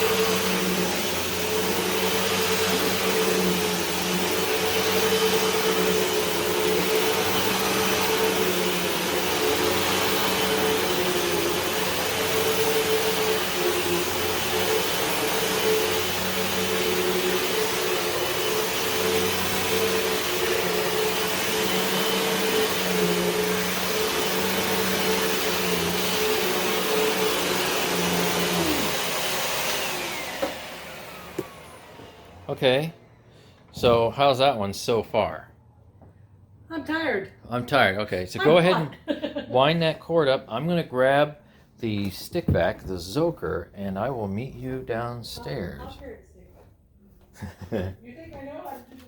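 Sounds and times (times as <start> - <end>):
upright vacuum cleaner running: 0.0 - 33.2, 38.4 - 39.8
vacuum motor winding down: 0.0 - 33.2.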